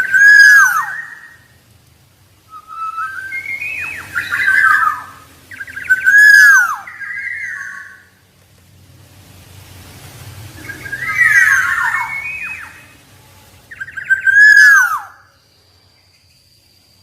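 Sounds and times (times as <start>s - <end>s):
bird singing fluty whistles: 0.0s - 1.6s, 2.5s - 8.1s, 10.6s - 13.0s, 13.7s - 15.5s.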